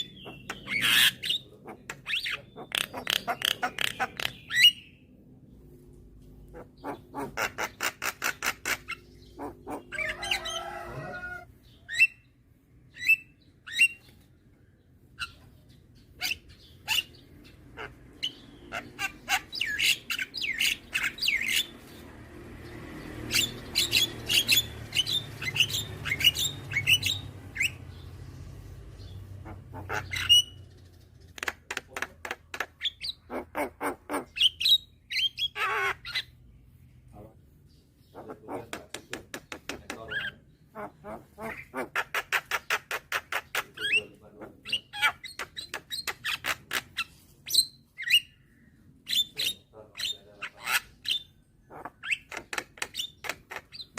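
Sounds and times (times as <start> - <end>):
myna calling: 0.0 - 4.8, 6.5 - 12.1, 29.3 - 30.6.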